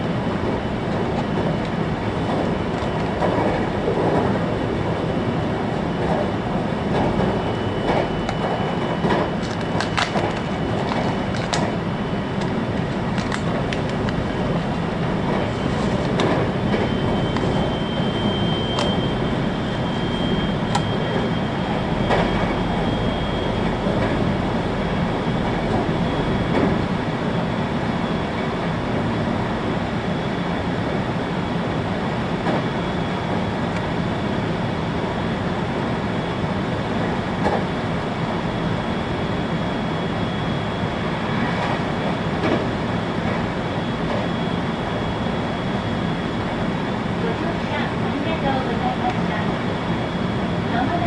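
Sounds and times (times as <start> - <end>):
train wheels rumbling on rail: 0.0 - 51.0
faint high whine: 16.5 - 28.4.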